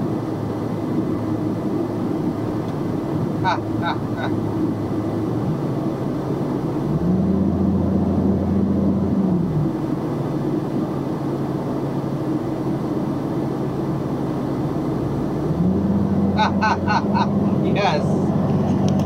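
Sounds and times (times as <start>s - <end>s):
road and engine noise in truck cab: 0.0s - 19.0s.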